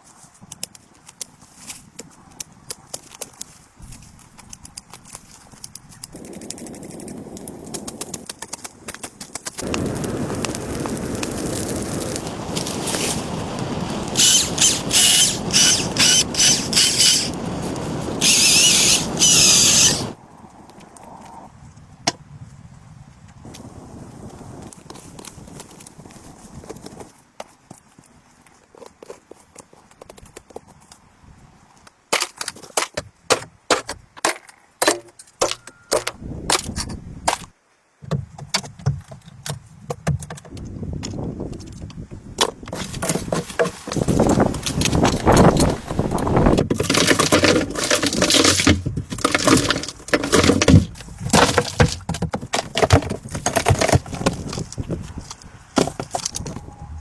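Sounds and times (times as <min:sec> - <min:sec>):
power tool whining in bursts: 0:14.2 - 0:17.4, 0:18.2 - 0:20.2.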